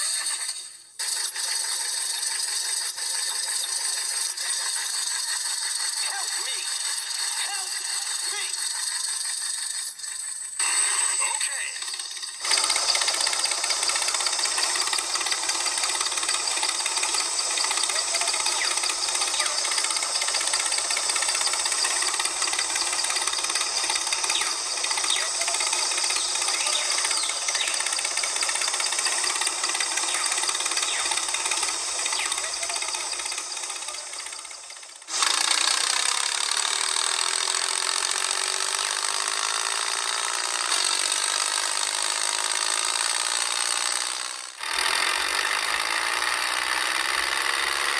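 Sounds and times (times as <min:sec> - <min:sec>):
small motor running: 0:00.0 - 0:47.9.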